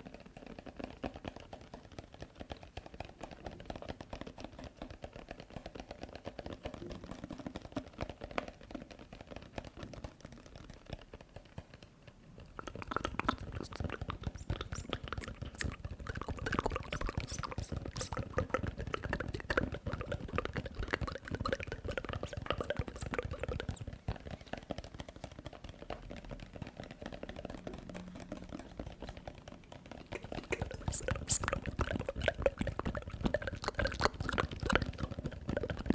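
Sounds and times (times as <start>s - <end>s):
wet mouth clicks and smacks: 12.4s - 24.8s, 27.0s - 35.9s.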